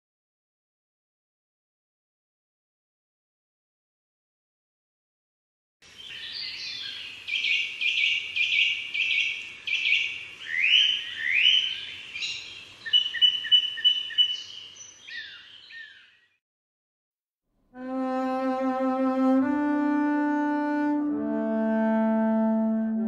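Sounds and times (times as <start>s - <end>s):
birdsong: 5.8s - 16.4s.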